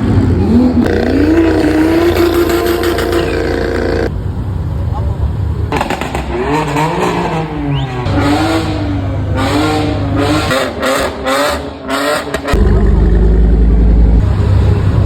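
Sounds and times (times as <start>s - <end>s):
car engines revving: 0.0s - 15.0s
deep exhaust rumble: 12.6s - 15.0s.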